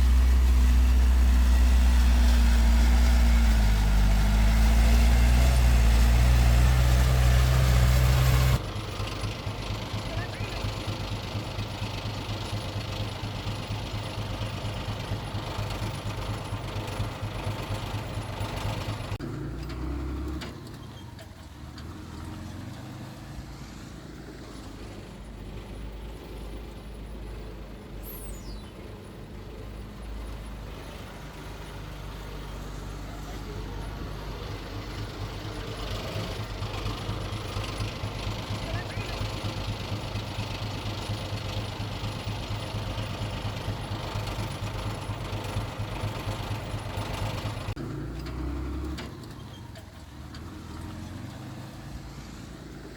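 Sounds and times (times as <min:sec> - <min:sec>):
heavy diesel engine throbbing: 0:00.0 - 0:20.4.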